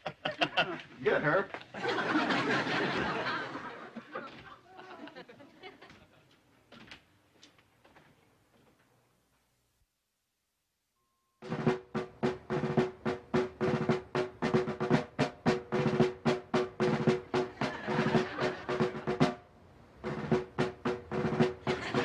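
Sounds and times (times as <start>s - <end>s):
snare drum rhythm: 11.4s - 22.0s.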